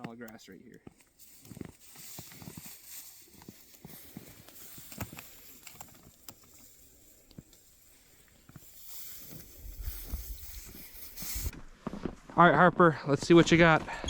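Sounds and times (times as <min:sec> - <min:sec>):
grass rustling: 0:00.0 - 0:12.2
footsteps through tall grass: 0:00.8 - 0:12.4.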